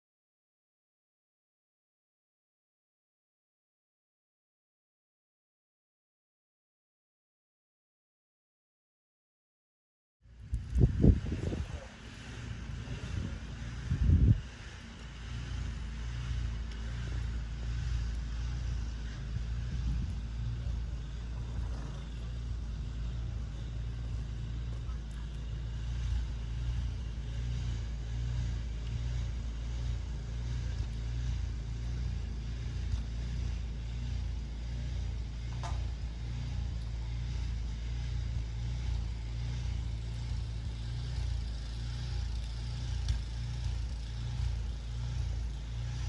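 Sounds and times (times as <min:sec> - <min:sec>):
vehicle low rumble: 0:10.2 - 0:46.0.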